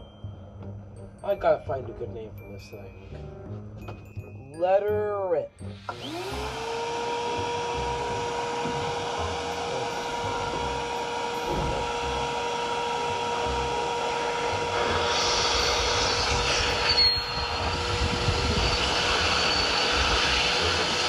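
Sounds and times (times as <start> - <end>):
small engine pulsing: 5.6 - 21.0
vacuum cleaner motor whine: 5.7 - 21.0
rushing air hiss: 5.8 - 21.0.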